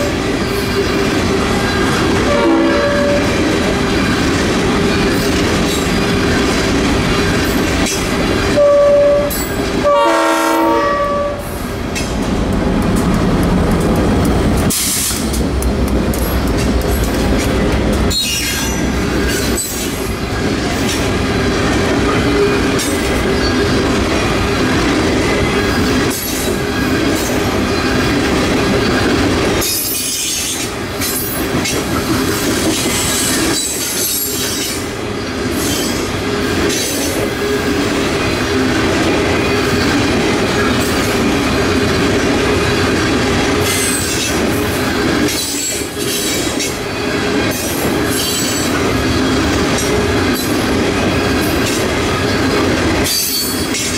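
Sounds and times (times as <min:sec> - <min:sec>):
wheels clacking over rail joints: 0:11.8 - 0:53.9.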